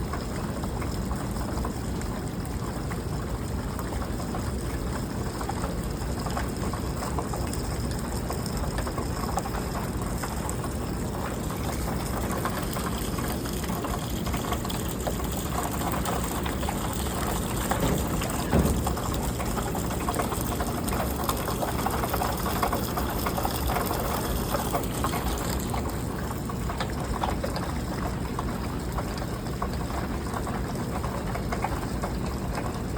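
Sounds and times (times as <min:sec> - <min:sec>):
brief thump: 0:17.7 - 0:19.2.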